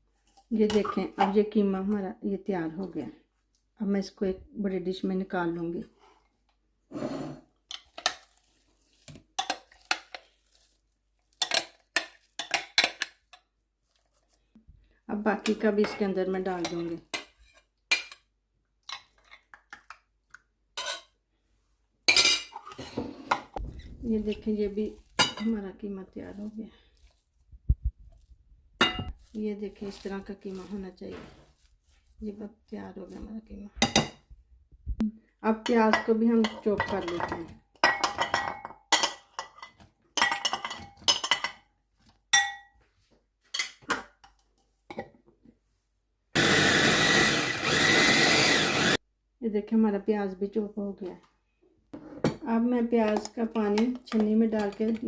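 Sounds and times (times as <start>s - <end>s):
dishes and utensils clinking: 28.8s - 29.2s, 35.9s - 41.6s
food chopper motor: 46.4s - 49.0s.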